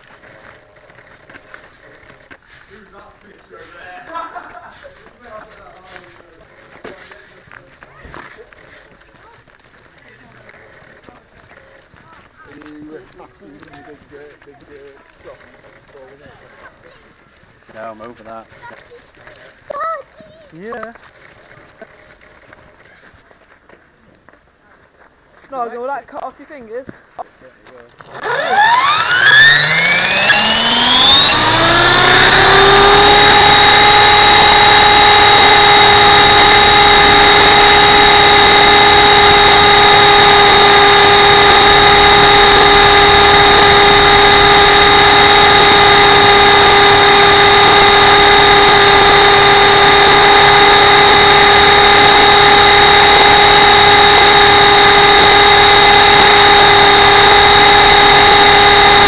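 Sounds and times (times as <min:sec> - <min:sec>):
helicopter rotor whine: 0:27.9 - 0:59.0.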